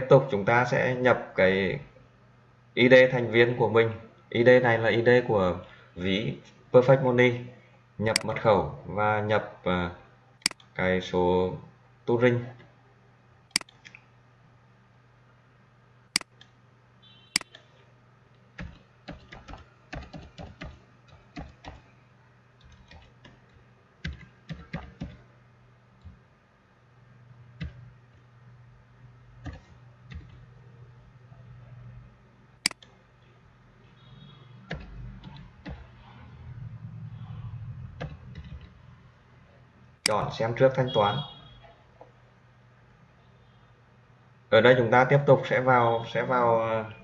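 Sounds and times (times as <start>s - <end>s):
steady low hum: 0.0s - 45.7s
typing on a keyboard: 18.6s - 21.8s, 22.6s - 25.2s.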